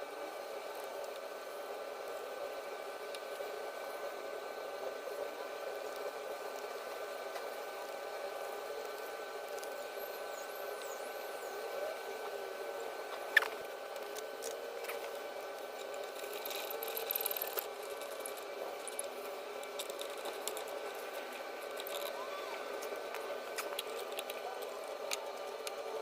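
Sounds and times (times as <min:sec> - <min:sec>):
steady background hum: 0:00.0 - 0:26.0
scratchy rattle: 0:15.9 - 0:20.8.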